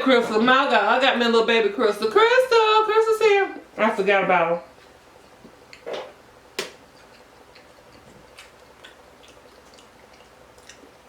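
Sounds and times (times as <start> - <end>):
mouth clicks and smacks chewing: 6.6 - 11.0.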